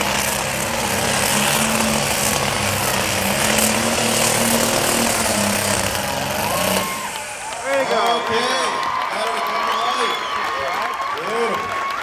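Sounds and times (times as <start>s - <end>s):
tractor engine at high revs: 0.0s - 8.5s.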